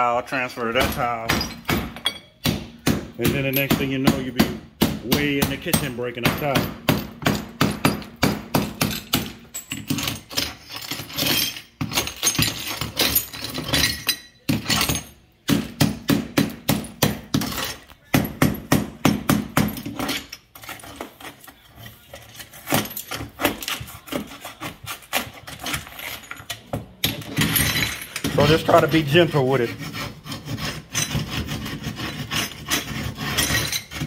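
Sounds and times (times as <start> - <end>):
hammer tapping chisel on tile: 0.8 - 10.5
chisel scraping tile: 5.1 - 34.0.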